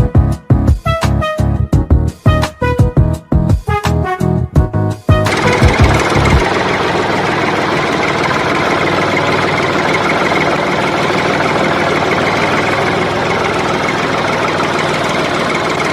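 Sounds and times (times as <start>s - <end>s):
engine idling: 5.3s - 15.9s.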